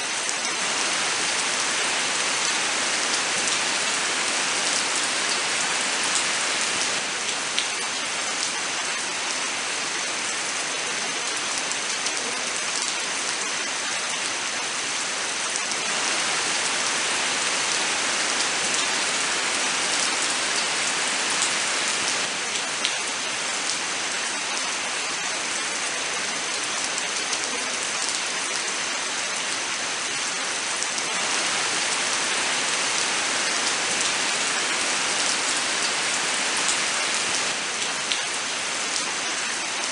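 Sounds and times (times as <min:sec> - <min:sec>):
rain hissing: 0:00.0 - 0:08.8, 0:15.3 - 0:25.7, 0:29.4 - 0:39.9.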